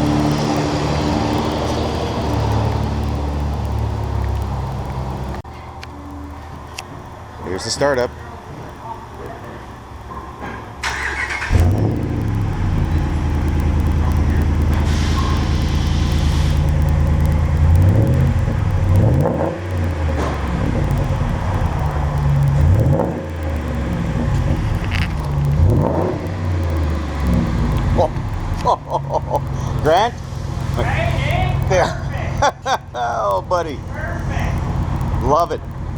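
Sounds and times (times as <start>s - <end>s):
engine revving: 0.0s - 5.3s, 10.8s - 32.5s
engine cranking: 10.8s - 35.9s.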